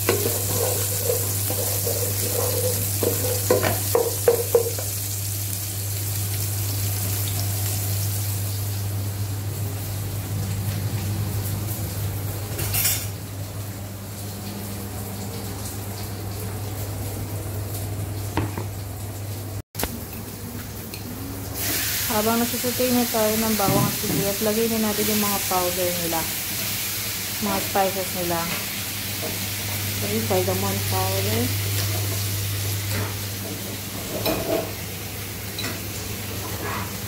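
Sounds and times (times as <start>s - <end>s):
utensil stirring and clinking on pan: 0.0s - 4.8s
garlic and onion sizzling in oil: 0.0s - 18.7s, 19.8s - 37.0s.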